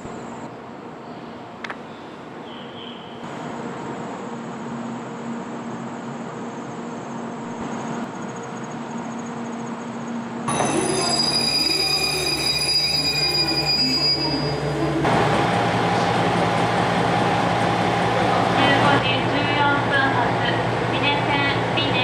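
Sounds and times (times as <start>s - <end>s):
railcar humming: 0.0s - 22.0s
train brakes squealing: 10.5s - 15.0s.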